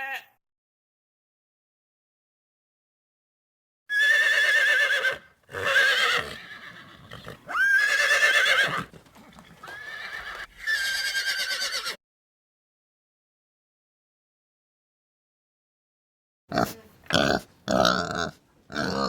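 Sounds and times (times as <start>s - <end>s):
horse whinnying: 3.9s - 12.0s.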